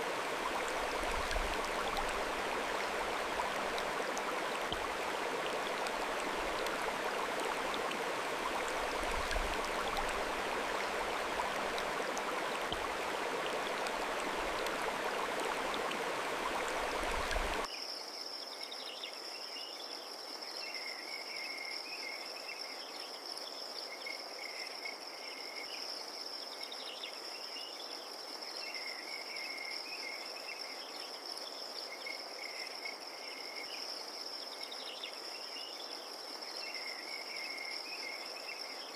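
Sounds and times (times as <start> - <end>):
running water rushing: 0.0 - 17.7.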